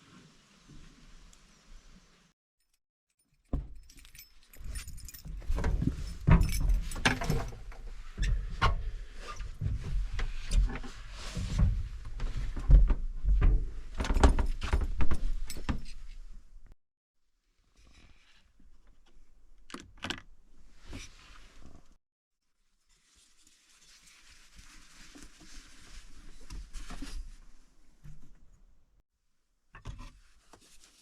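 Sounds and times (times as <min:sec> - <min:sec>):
objects clinking and knocking: 0:03.3 - 0:07.9.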